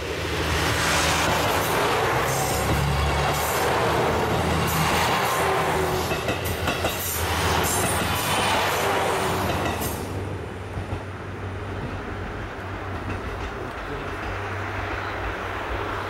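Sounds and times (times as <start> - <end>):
diesel train rolling past: 0.0 - 16.0
wheels clicking over rail joints: 11.7 - 15.5.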